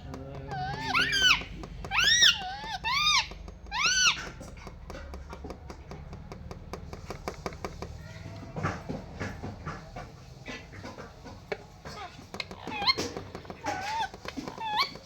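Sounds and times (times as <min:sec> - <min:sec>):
parrot call: 0:00.5 - 0:04.2.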